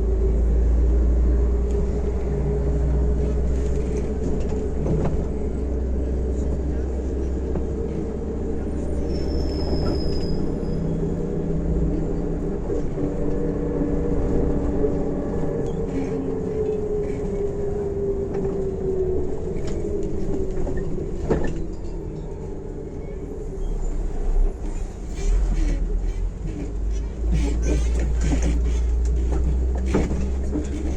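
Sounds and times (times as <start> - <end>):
bus engine and road rumble: 0.0 - 30.9.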